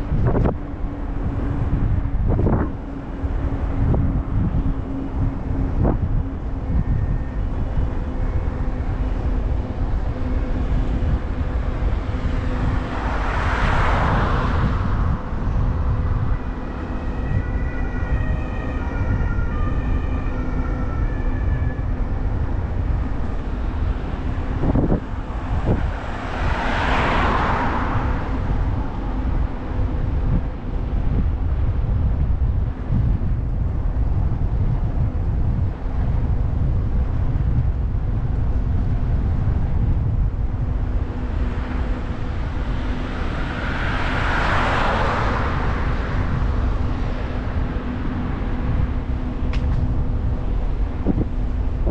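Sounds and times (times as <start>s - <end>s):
steady low hum: 0.0s - 26.4s, 45.2s - 51.9s
vehicles passing: 0.0s - 51.9s
wind rumbling on microphone: 0.0s - 51.9s.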